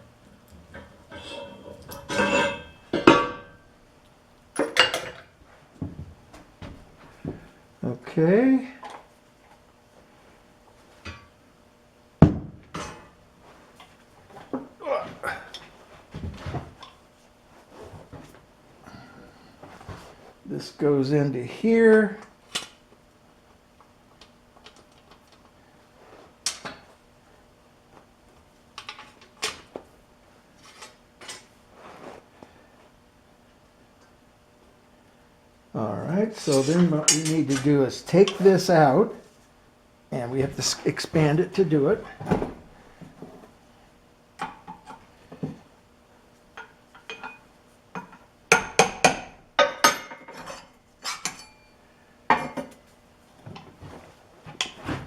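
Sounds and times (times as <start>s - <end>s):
metal parts clanking: 0.8s - 3.5s, 36.4s - 37.7s
metal scrape: 1.1s - 3.5s, 36.4s - 37.6s.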